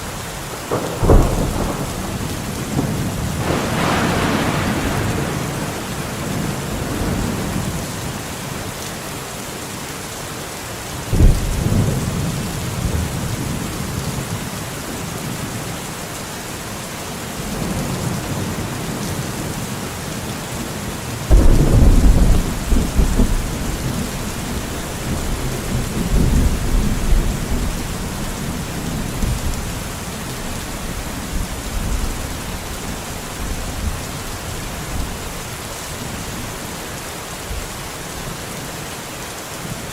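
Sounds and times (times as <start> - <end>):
rain falling in a forest: 0.0 - 39.9
thunder claps rolling: 0.7 - 8.0, 21.3 - 30.0.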